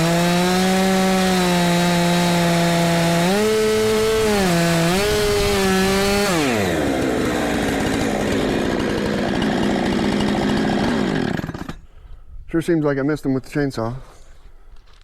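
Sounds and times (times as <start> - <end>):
chainsaw cutting wood: 0.0 - 11.9
chainsaw idling: 0.0 - 11.9.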